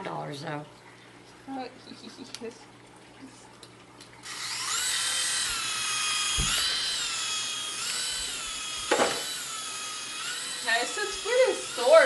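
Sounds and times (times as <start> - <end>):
toy helicopter motor whining: 4.2 - 12.0.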